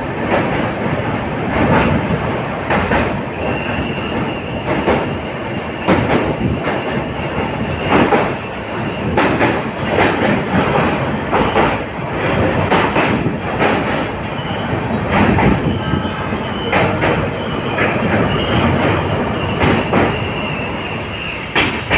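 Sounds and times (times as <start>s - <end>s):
train coach rumbling: 0.0s - 21.9s
wheels clacking over rail joints: 5.8s - 21.9s.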